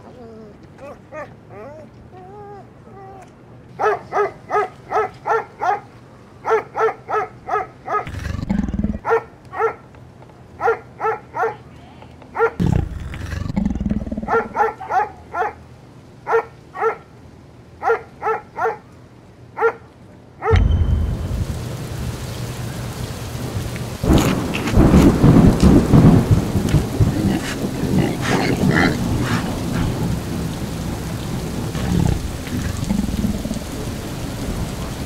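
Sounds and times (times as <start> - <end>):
animal barking calls: 3.2 - 9.9, 10.6 - 11.7, 12.3 - 15.6, 16.3 - 17.1, 17.8 - 18.9, 19.6 - 19.8, 24.0 - 35.0
animal low growl: 8.1 - 9.0, 12.6 - 14.5, 26.6 - 30.2, 31.7 - 34.0
heavy rain: 18.9 - 35.0
thunder: 20.5 - 35.0.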